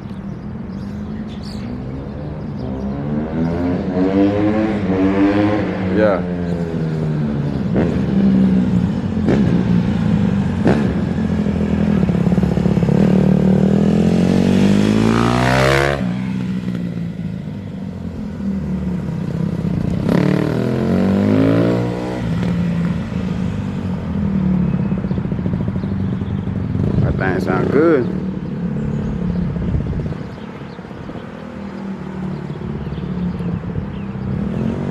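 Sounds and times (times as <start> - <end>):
dirt bike engine revving: 2.7 - 6.3, 7.2 - 16.8, 20.0 - 22.7.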